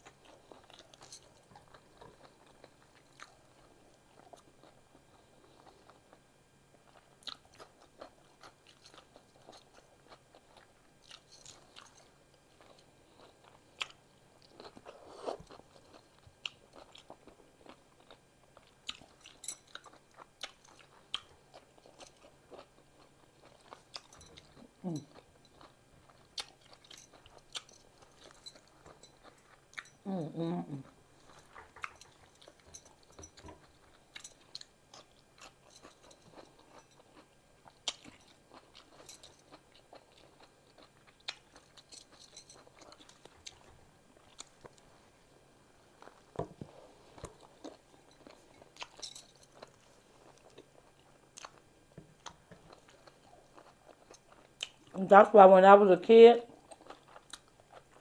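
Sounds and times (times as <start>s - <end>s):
quiet chewing: 0.0s - 55.0s, 56.5s - 58.0s.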